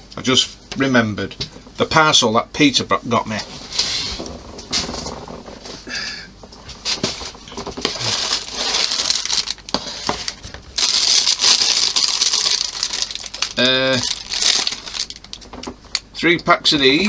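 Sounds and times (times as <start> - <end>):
plastic packaging crinkling: 6.8 - 16.1.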